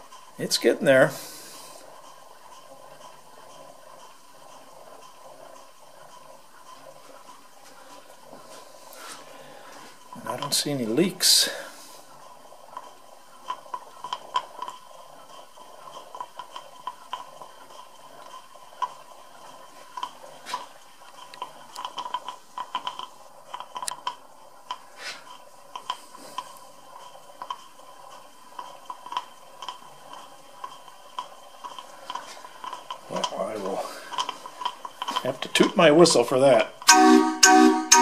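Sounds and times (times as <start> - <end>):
steam engine clicking and ticking: 0.0 - 38.0.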